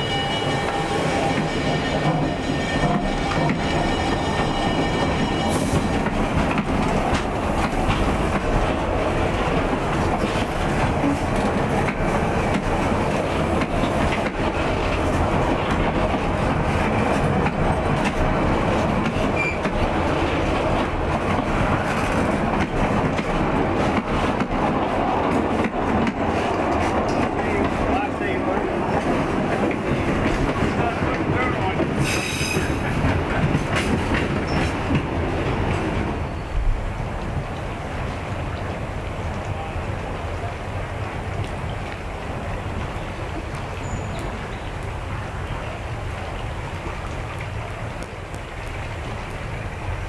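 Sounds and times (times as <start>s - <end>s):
locomotive horn: 0.0s - 6.1s
train rumble and wheel clatter: 0.0s - 50.0s.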